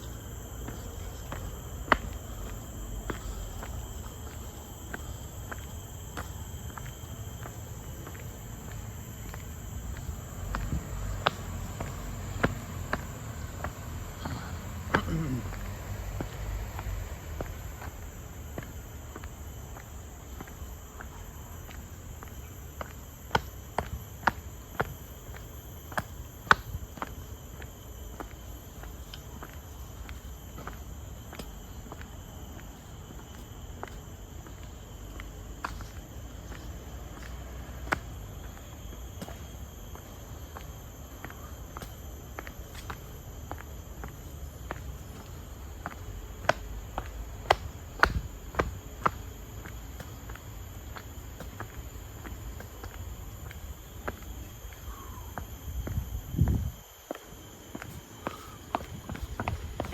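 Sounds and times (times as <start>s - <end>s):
footsteps on path: 0.0s - 59.9s
insects shrill chorus: 38.4s - 59.9s.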